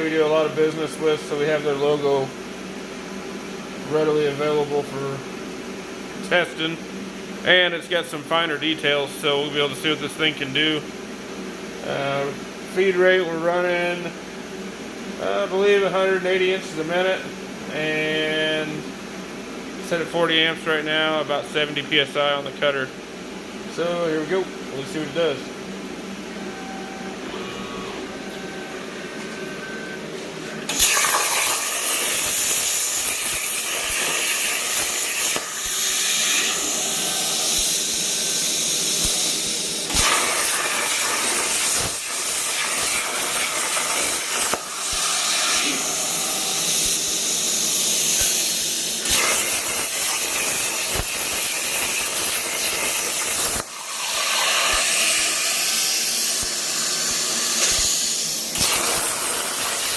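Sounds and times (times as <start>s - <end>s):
steady hum: 0.0s - 59.9s
plasma cutter hissing: 30.6s - 59.9s.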